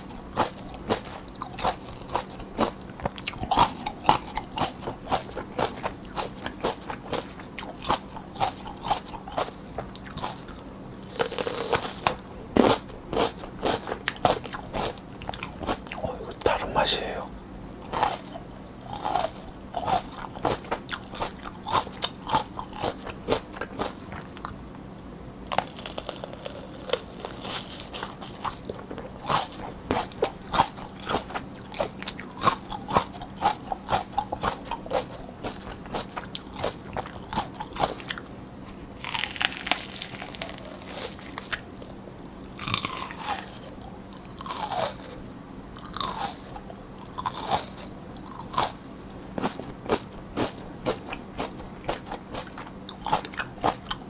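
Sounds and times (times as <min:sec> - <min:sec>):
crunching and chewing peppers: 0:00.0 - 0:54.0.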